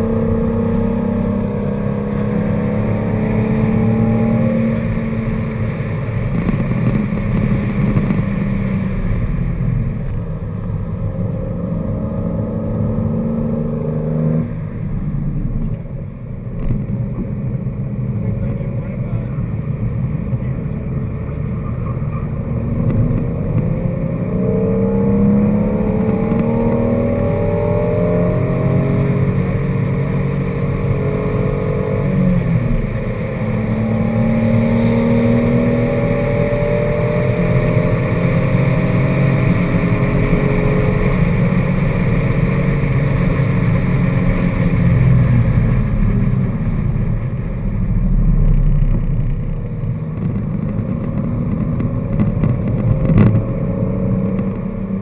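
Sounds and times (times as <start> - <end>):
car engine accelerating: 0.0 - 55.0
road and wind noise: 0.0 - 55.0.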